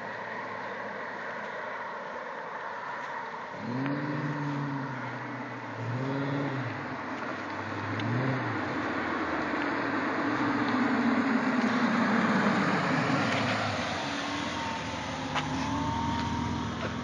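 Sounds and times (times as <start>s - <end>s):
car engine revving: 3.5s - 17.0s.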